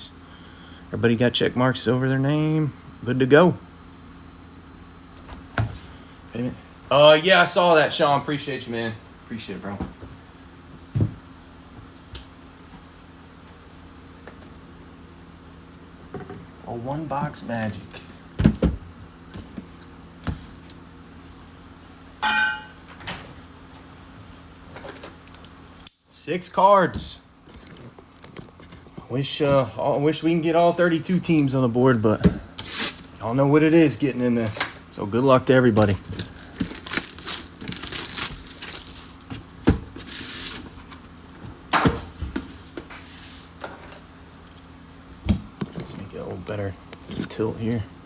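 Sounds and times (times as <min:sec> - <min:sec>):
plastic wrapping crinkling and tearing: 0:35.8 - 0:39.3.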